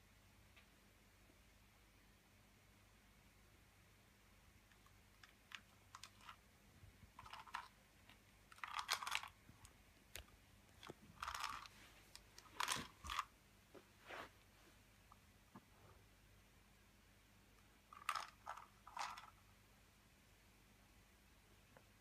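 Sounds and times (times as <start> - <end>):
cat chewing dry treats: 7.2 - 9.8.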